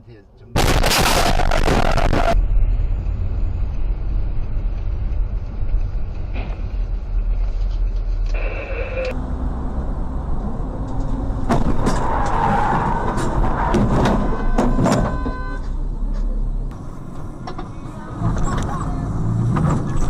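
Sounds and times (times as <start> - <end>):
vehicle engine and road rumble: 0.0 - 20.0
brief high tone: 14.4 - 15.6.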